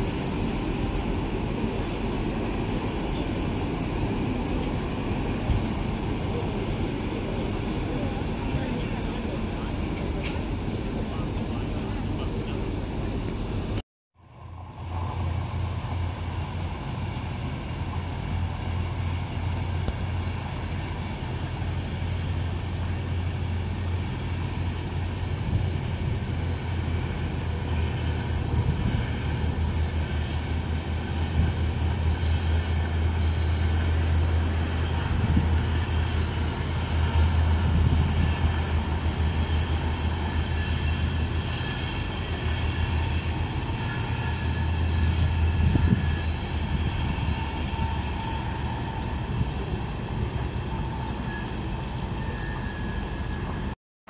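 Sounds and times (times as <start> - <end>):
train wheels rumbling on rails: 0.0 - 53.8.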